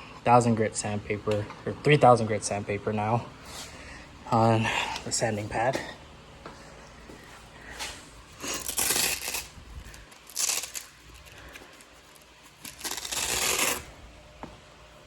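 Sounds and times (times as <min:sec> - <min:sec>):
sandpaper scratchy tearing: 0:08.4 - 0:09.5, 0:10.2 - 0:11.5, 0:12.1 - 0:13.9.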